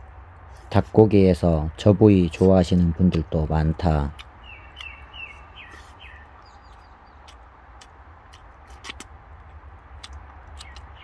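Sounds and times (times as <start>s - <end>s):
steady low rumble: 0.0s - 11.0s
small bird chirping: 4.2s - 9.0s, 10.0s - 11.0s.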